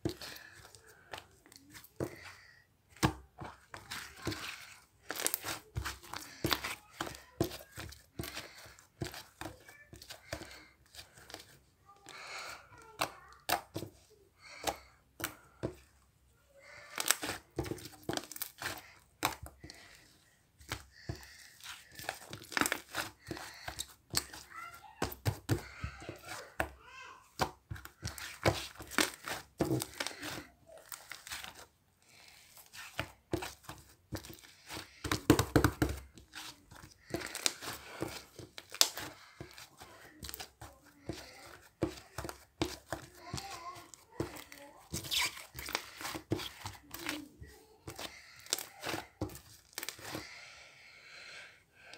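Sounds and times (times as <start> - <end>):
slime squished by hand: 32.4 - 50.4.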